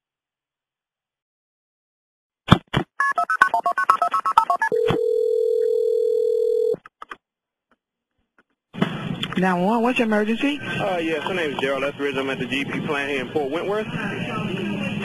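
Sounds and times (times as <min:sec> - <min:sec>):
steady telephone tone: 0:04.4 - 0:06.8.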